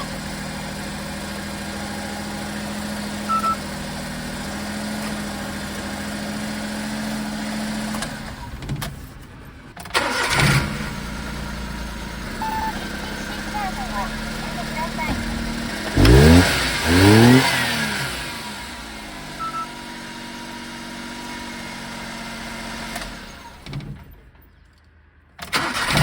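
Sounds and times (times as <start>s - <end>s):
car engine idling: 0.0s - 26.0s
starter motor cranking: 9.8s - 18.4s, 25.4s - 26.0s.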